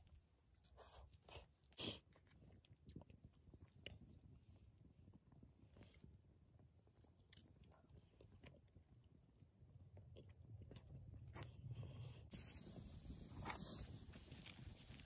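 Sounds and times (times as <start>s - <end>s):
chewing and biting food: 0.9s - 6.2s, 6.9s - 9.0s, 9.8s - 11.6s
hiss of noise: 12.3s - 15.0s.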